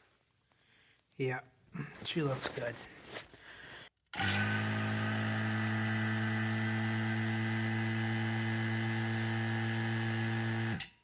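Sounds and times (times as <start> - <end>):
vacuum pump motor humming: 4.2 - 10.9.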